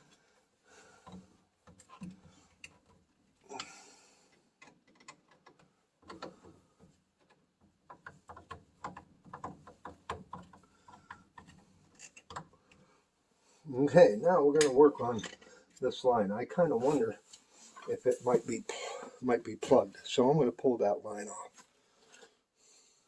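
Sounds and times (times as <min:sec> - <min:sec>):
metal tools clicking and tapping: 0:14.6 - 0:15.5.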